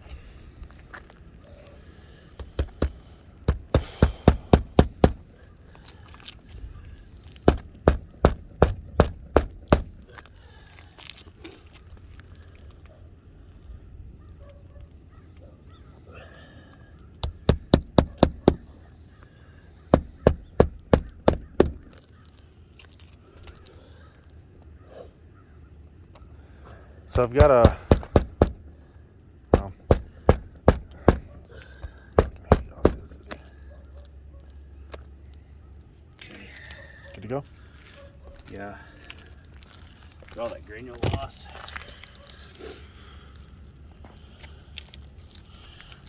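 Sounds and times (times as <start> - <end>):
hard footsteps: 2.3 - 10.4, 17.2 - 18.8, 19.9 - 22.0, 27.2 - 28.7, 29.5 - 33.4
hammer striking nail: 2.5 - 5.3, 7.5 - 10.0, 17.2 - 18.7, 19.9 - 22.0, 27.2 - 28.6, 29.5 - 31.4, 32.2 - 33.1.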